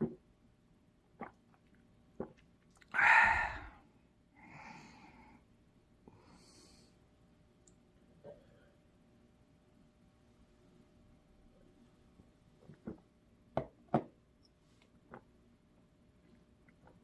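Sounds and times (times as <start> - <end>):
person breathing: 2.9 - 5.4, 6.1 - 7.0.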